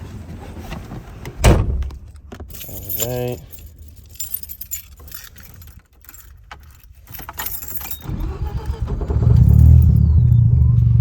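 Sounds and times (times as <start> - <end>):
keys jangling: 2.4 - 10.5
rotary engine starting and idling: 7.6 - 11.0.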